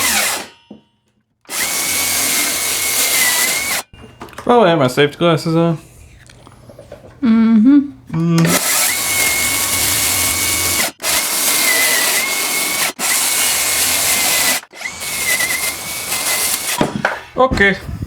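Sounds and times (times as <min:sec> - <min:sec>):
circular saw cutting wood: 0:00.0 - 0:00.7, 0:01.5 - 0:03.9, 0:08.5 - 0:17.0
high blade whine: 0:08.6 - 0:15.8.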